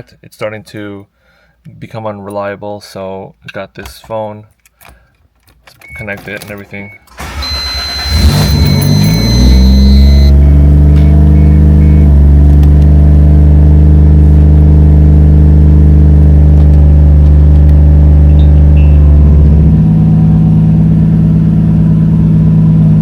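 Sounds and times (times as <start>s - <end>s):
high electronic beep: 6.8s - 12.1s, 18.3s - 19.4s
car engine starting and idling: 7.0s - 23.0s.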